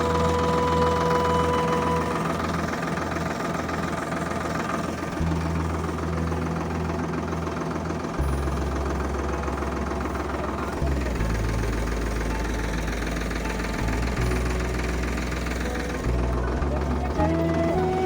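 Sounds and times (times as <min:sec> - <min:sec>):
held tone: 0:00.0 - 0:03.6
tractor engine running: 0:00.0 - 0:18.0.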